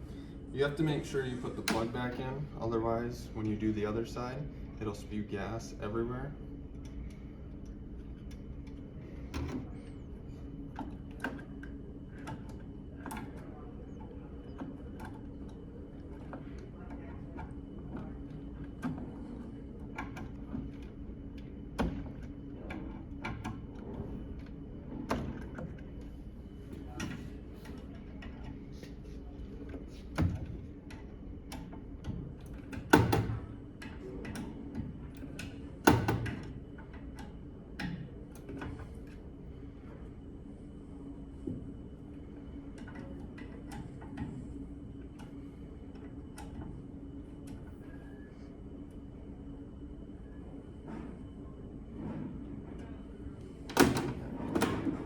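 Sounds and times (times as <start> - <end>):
steady background hum: 0.0 - 55.0.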